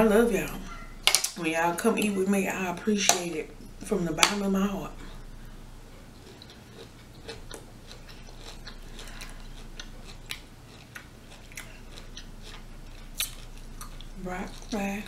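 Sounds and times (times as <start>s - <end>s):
person chewing crunchy food: 5.0s - 15.0s.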